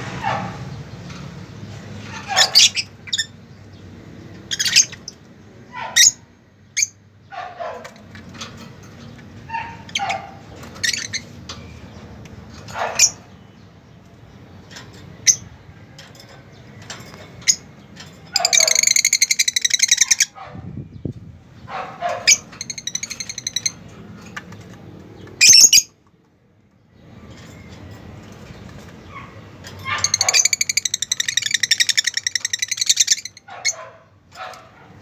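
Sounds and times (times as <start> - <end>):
pet birds chirping: 0.0 - 35.0
bird rattling chatter: 7.7 - 13.4, 14.1 - 20.3, 21.6 - 25.6, 27.1 - 35.0.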